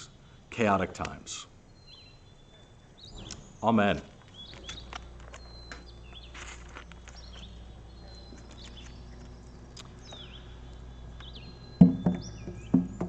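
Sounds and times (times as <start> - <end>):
faint birds chirping: 0.0 - 13.0
loud low thumps: 11.8 - 13.0.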